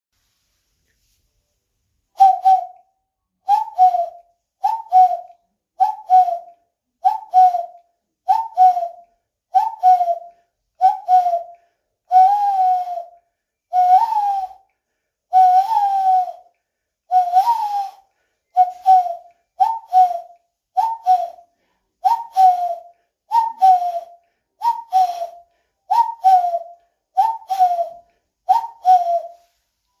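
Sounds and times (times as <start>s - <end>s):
cuckoo calling: 18.6s - 21.4s, 22.1s - 29.6s.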